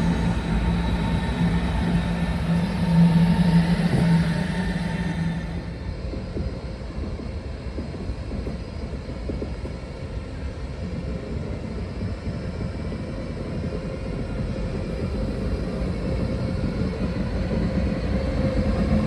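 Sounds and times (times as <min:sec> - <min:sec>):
humming tone: 0:00.0 - 0:06.4
train rumbling on track: 0:00.0 - 0:19.0.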